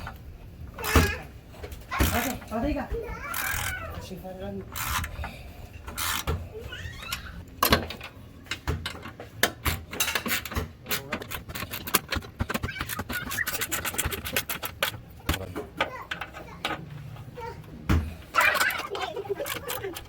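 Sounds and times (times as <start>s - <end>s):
sharp clicks and knocks: 7.1s - 20.0s.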